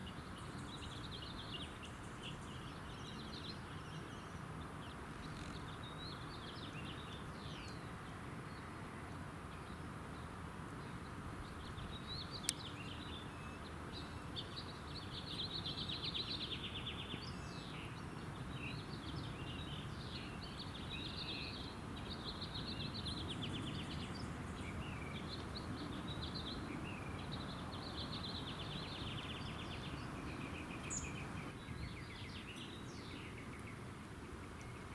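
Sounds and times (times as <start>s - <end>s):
outdoor background noise: 0.0s - 34.9s
songbirds chirping and singing: 10.8s - 34.9s.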